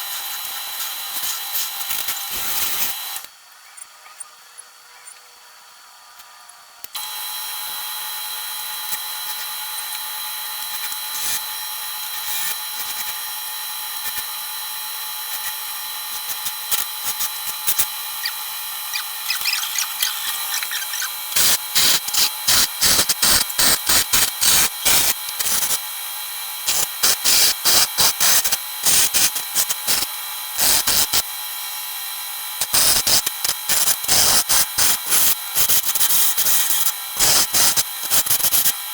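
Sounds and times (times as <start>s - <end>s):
tool scraping spinning wood: 17.7s - 23.4s.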